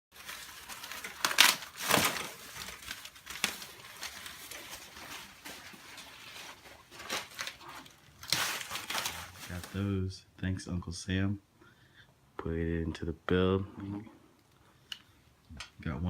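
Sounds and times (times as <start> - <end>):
crinkling and rustling handling noise: 0.1 - 10.1.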